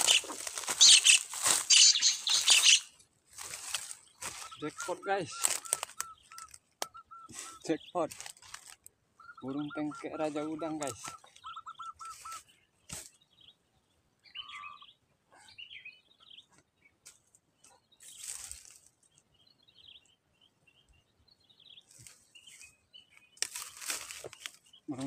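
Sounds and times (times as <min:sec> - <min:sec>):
faint bird chirps: 0:00.0 - 0:03.0, 0:03.8 - 0:08.3, 0:09.2 - 0:17.0
rustles: 0:00.0 - 0:06.7, 0:07.3 - 0:08.9, 0:12.0 - 0:13.2, 0:16.5 - 0:19.2, 0:21.8 - 0:25.0.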